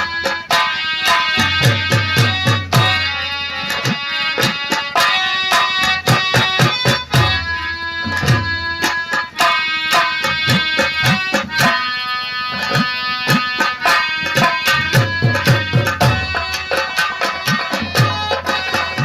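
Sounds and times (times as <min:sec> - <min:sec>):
fast hand drumming: 0:00.0 - 0:19.0
harmonium melody: 0:00.0 - 0:19.0.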